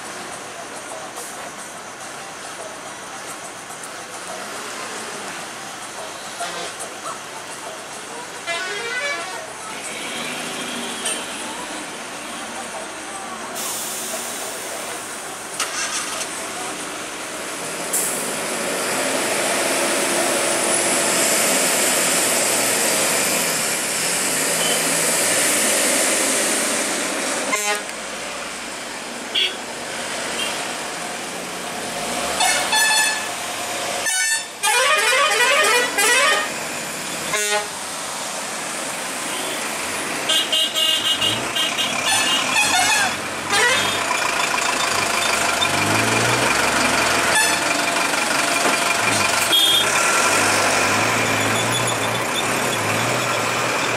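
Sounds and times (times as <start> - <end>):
heavy trucks running: 0.0 - 53.9
truck horns honking: 6.3 - 6.9, 8.2 - 11.5, 27.4 - 28.0, 29.3 - 29.7, 30.3 - 30.7, 32.1 - 38.0, 39.2 - 53.9.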